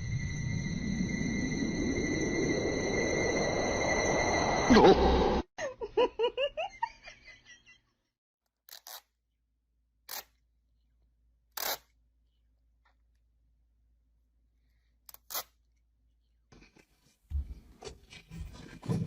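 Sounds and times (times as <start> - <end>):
person laughing: 4.7 - 7.8.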